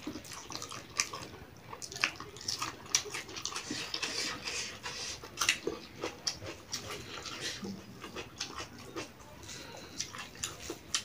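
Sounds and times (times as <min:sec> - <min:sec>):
wet chewing and lip smacking: 0:00.0 - 0:11.0.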